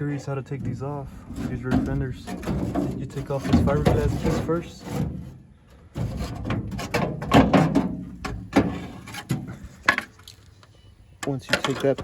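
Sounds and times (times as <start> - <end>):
trim piece scraping and rattling: 0.5 - 5.4, 6.0 - 10.1.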